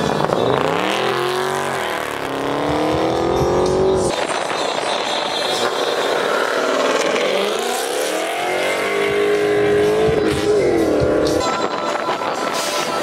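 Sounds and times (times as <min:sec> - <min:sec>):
car engine revving: 0:00.0 - 0:11.5.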